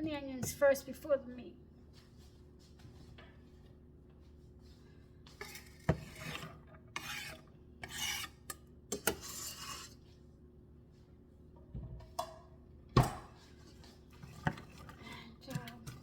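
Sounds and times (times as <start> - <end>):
utensil scraping vegetables in pan: 5.4 - 10.2.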